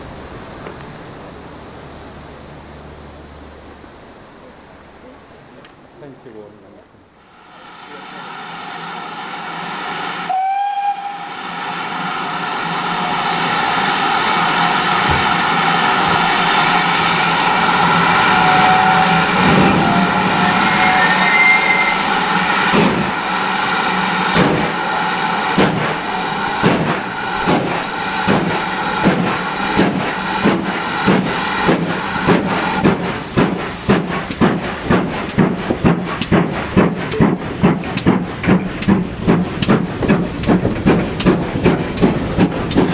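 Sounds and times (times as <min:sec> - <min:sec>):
hissing steam: 0:00.0 - 0:42.9
locomotive exhaust beats: 0:07.3 - 0:42.9
steam locomotive whistle: 0:07.4 - 0:29.5.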